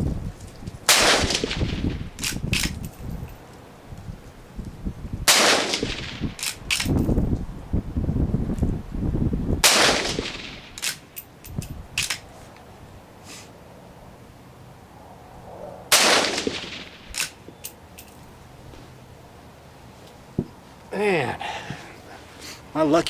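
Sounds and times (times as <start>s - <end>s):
wind rumble on microphone: 0.0s - 10.8s, 11.4s - 13.0s
rifle shots echoing: 0.9s - 2.0s, 5.3s - 6.6s, 9.6s - 11.0s, 15.9s - 17.4s.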